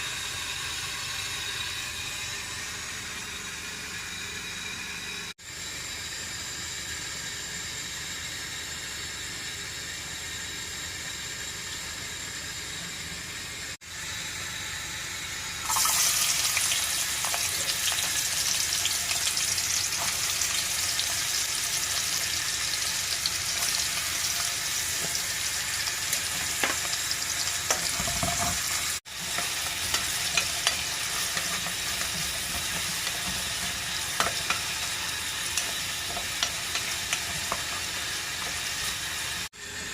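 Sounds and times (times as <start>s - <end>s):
food sizzling in a pan: 13.9s - 39.5s.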